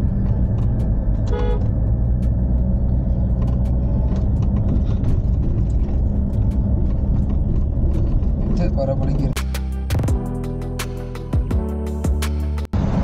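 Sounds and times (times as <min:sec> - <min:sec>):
car engine labouring: 0:00.0 - 0:09.4.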